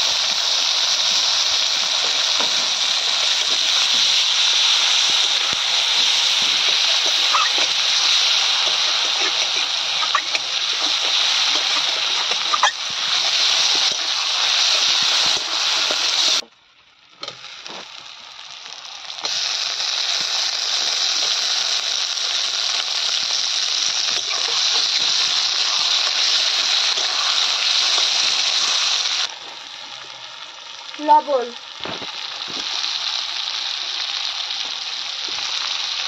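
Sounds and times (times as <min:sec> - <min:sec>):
onions sizzling in hot oil: 0:00.0 - 0:36.0
metal spatula scraping pan: 0:06.4 - 0:16.4.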